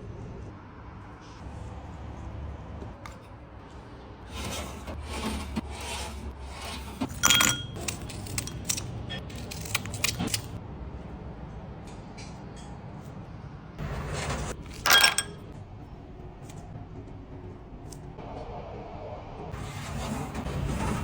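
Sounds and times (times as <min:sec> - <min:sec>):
rubbing and scraping handling noise: 0:03.1 - 0:10.6, 0:13.8 - 0:15.5.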